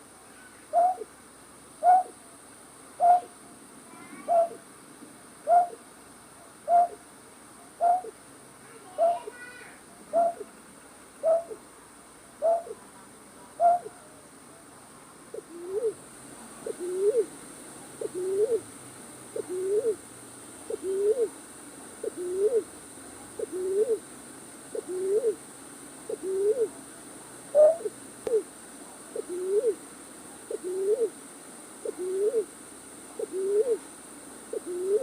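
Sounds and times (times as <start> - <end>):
night bird hooting: 0.7 - 1.1, 1.8 - 2.2, 3.0 - 3.4, 4.3 - 4.6, 5.4 - 5.8, 6.7 - 7.0, 7.8 - 8.2, 10.1 - 10.5, 11.2 - 11.6, 12.4 - 12.8, 13.6 - 14.0, 15.3 - 16.0, 16.6 - 17.3, 18.0 - 18.6, 19.4 - 20.0, 20.7 - 21.4, 22.0 - 22.7, 23.4 - 24.0, 24.7 - 25.4, 26.1 - 26.8, 27.5 - 28.5, 29.2 - 29.8, 30.5 - 31.2, 31.8 - 32.5, 33.2 - 33.8, 34.5 - 35.0.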